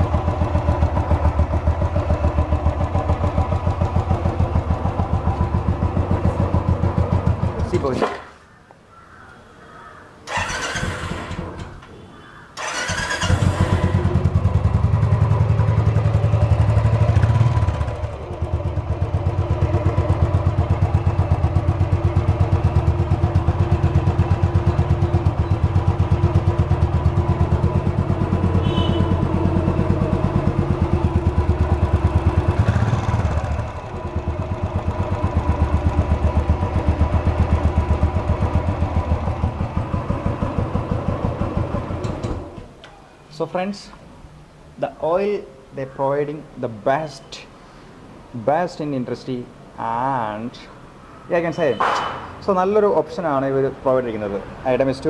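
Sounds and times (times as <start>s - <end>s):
motorcycle engine idling: 0.0s - 7.8s, 12.2s - 42.5s
motorcycle engine cranking: 10.3s - 12.0s, 12.6s - 15.0s.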